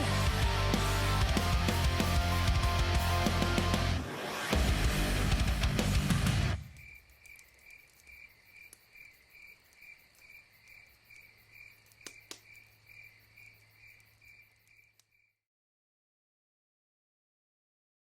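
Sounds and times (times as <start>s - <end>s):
quick clicks: 6.6s - 8.8s
cricket chirping: 6.6s - 15.4s.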